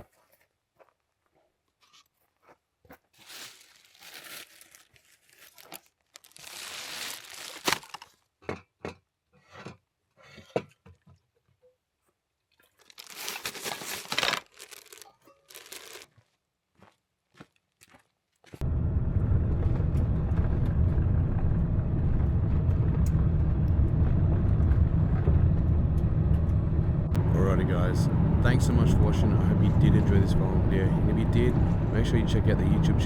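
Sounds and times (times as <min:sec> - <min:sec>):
bags and packaging crinkling: 0:03.1 - 0:08.2, 0:12.7 - 0:16.2.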